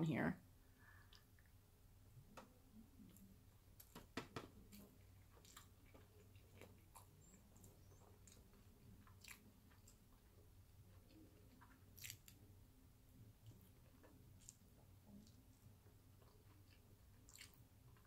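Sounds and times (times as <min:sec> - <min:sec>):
close-up chewing: 0:04.5 - 0:18.0
wet mouth clicks: 0:12.0 - 0:12.4.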